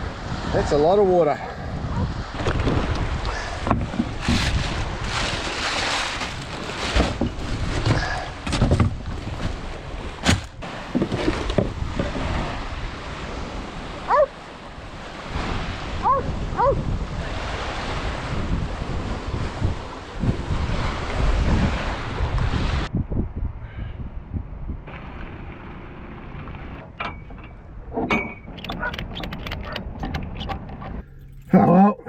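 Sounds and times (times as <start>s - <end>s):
wind buffeting microphone: 0.0s - 25.6s
water sloshing and splashing: 2.2s - 16.7s, 26.8s - 32.0s
short squeaky chirps: 28.6s - 30.6s.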